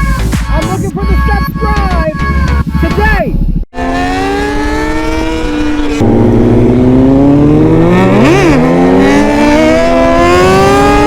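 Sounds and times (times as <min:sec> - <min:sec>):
motorcycle engine revving: 0:02.4 - 0:11.0.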